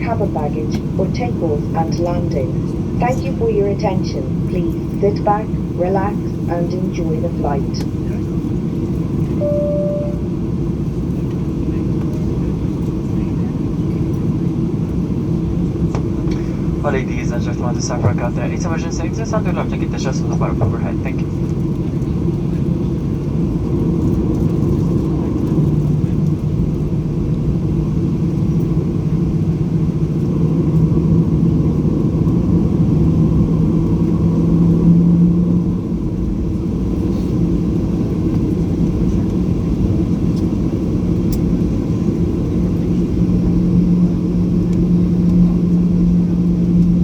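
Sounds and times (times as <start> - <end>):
aircraft cabin low rumble: 0.0 - 47.0
hum rising in pitch: 9.4 - 10.6.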